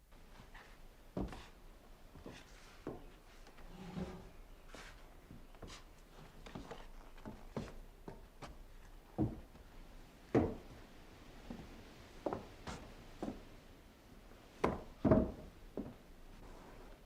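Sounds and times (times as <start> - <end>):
wooden knocks and thuds: 14.6 - 16.0.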